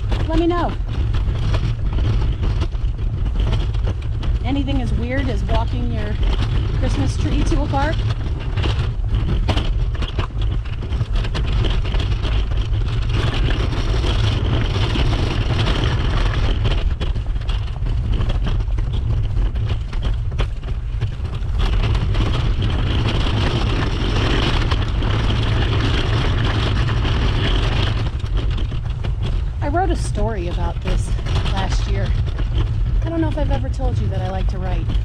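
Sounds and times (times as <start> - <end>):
steady low rumble: 0.0 - 35.0
wheels rolling over snow: 0.0 - 35.0
snow crunching: 29.4 - 35.0.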